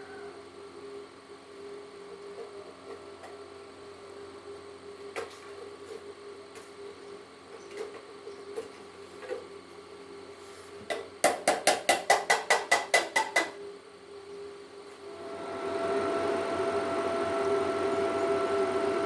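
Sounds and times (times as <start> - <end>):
electrical hum: 0.0 - 11.3, 13.5 - 19.0.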